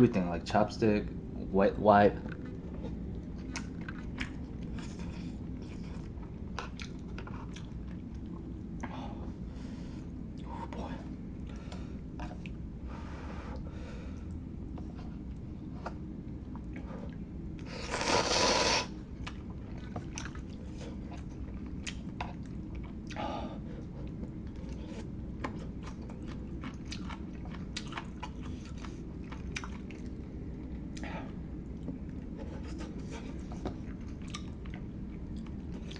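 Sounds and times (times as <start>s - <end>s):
close chewing and crunching: 2.2s - 8.9s, 19.0s - 35.9s.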